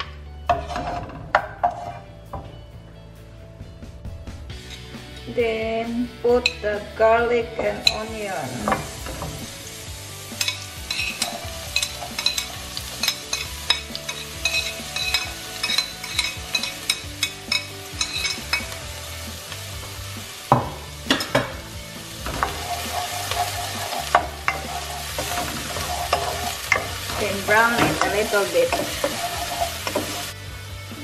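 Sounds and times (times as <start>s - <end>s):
garlic and onion sizzling in oil: 6.3s - 31.0s
teaspoon clicking against pan: 10.4s - 18.7s
wooden spoon stirring: 22.3s - 30.3s.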